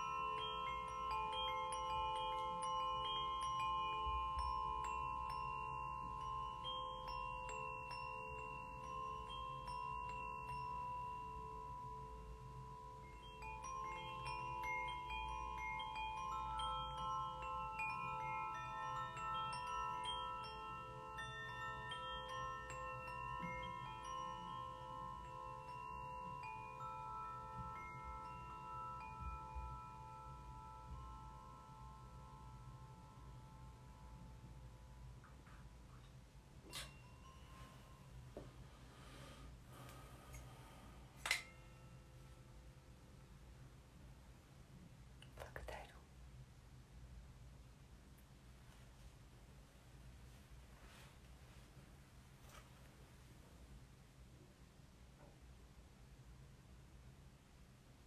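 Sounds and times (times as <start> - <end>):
steel tongue drum notes: 0.0 - 34.1
bells ringing: 0.0 - 35.1, 36.7 - 42.6
singing bowls ringing: 0.0 - 35.2, 36.0 - 42.9.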